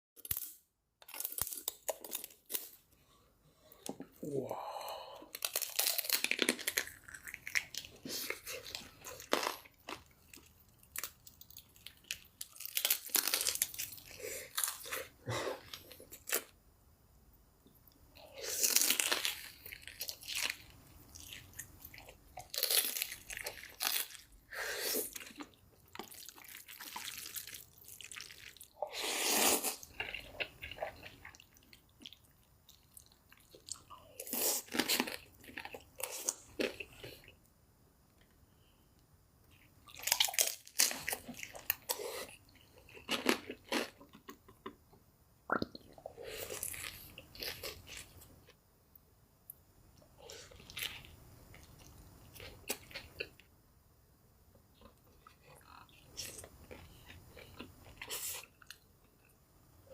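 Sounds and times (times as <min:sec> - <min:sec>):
crunching fried chicken: 0:05.3 - 0:16.5, 0:18.4 - 0:24.4, 0:25.0 - 0:37.2, 0:39.8 - 0:44.8.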